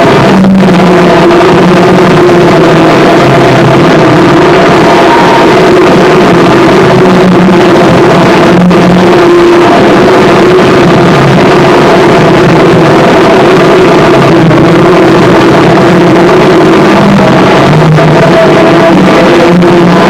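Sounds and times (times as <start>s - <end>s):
distorted harsh noise music: 0.0s - 20.0s
droning tones: 0.0s - 20.0s.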